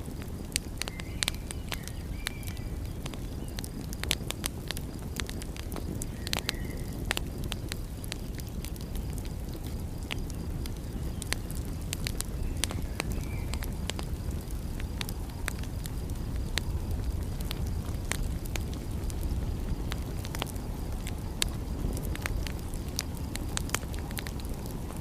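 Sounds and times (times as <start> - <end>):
fire rumbling: 0.0 - 25.0
wood fire crackling: 0.0 - 25.0
faint whistles: 0.8 - 3.6, 6.0 - 7.0.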